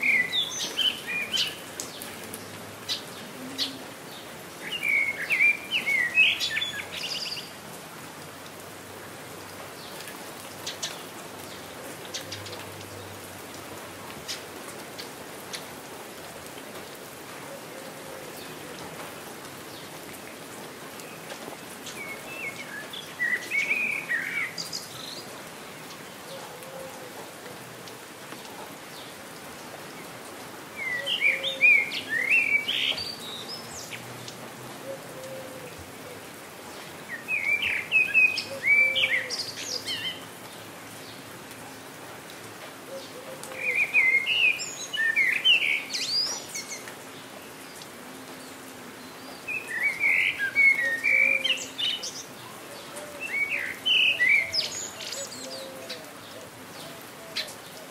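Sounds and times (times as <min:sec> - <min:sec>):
songbird chirping: 0:00.0 - 0:07.6, 0:30.8 - 0:41.6, 0:42.9 - 0:57.9
steady rain falling: 0:00.0 - 0:57.9.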